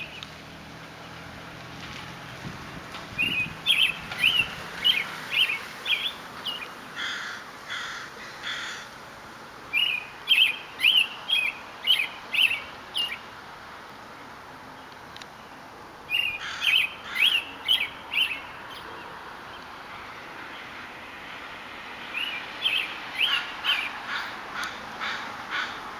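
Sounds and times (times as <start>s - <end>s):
robin singing whistled phrases: 3.2s - 6.7s, 9.7s - 13.2s, 16.1s - 18.9s, 22.1s - 24.0s
harsh hoarse bird calls: 3.2s - 8.9s, 16.1s - 19.1s, 22.1s - 25.9s.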